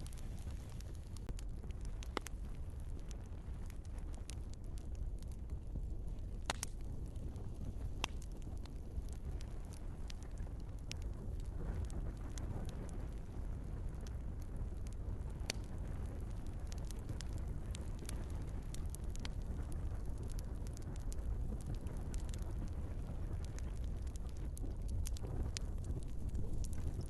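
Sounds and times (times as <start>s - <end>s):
wood fire crackling and popping: 0.0s - 27.0s.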